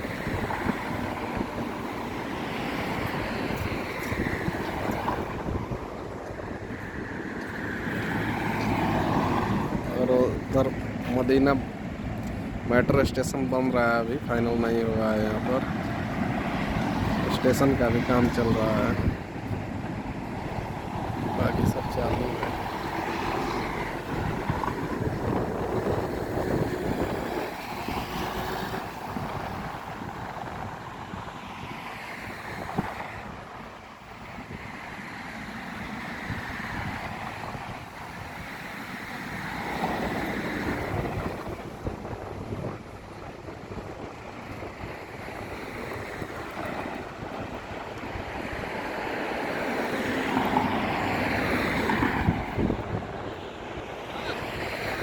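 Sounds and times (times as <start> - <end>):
road traffic: 0.0 - 55.0
wind on microphone: 0.0 - 55.0.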